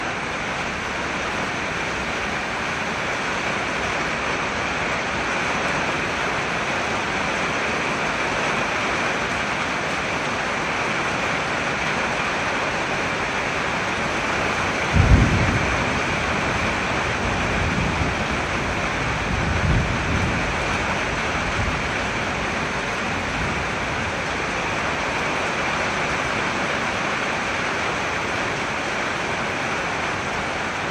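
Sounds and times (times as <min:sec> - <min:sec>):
heavy rain pouring: 0:00.0 - 0:30.9
low rumbles: 0:14.0 - 0:26.4.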